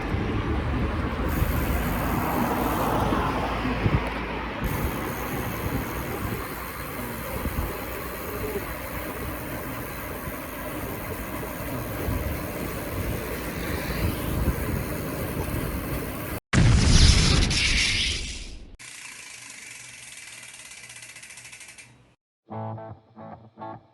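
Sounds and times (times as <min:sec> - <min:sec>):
wind buffeting microphone: 0:00.0 - 0:09.4, 0:10.8 - 0:16.4
bike rolling on trail: 0:00.0 - 0:16.4.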